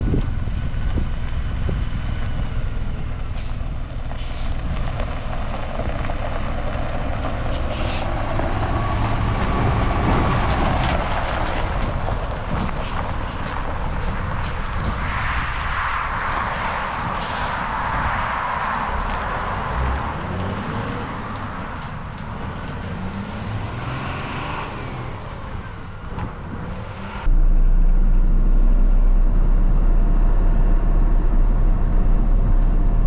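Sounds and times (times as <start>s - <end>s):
diesel truck engine running: 0.0s - 33.0s
air brake hissing: 4.2s - 4.6s, 7.5s - 8.2s, 17.2s - 17.6s.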